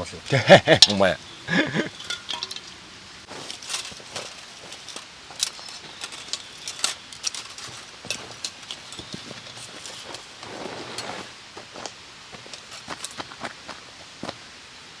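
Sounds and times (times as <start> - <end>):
sharp clicks and light clinks: 1.6 - 2.8, 3.4 - 10.3
soft rustle: 1.6 - 14.4.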